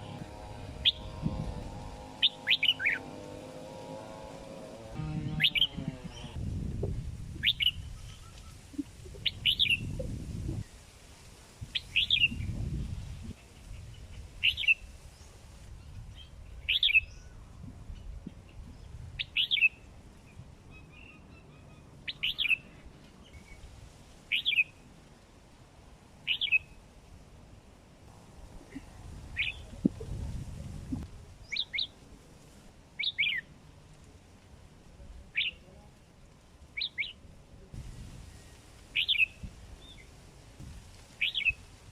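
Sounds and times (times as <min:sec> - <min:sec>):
bird giving sharp calls: 0:00.0 - 0:03.5, 0:05.3 - 0:06.4, 0:39.0 - 0:39.4.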